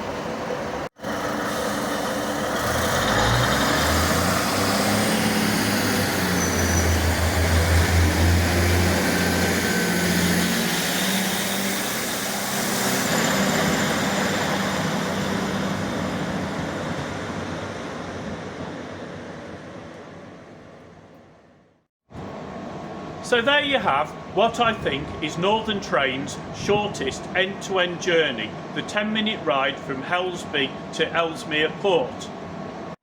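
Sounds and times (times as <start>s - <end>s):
diesel train engine: 0.0s - 33.0s.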